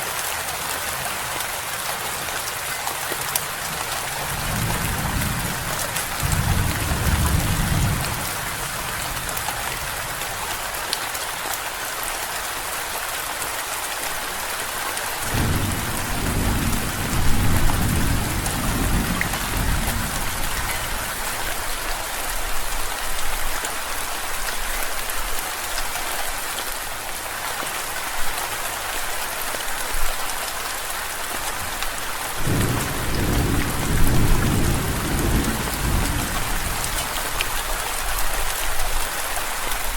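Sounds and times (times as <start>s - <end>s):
steady rain falling: 0.0s - 39.9s
rolling thunder: 4.2s - 8.7s, 15.3s - 21.0s, 32.4s - 37.4s.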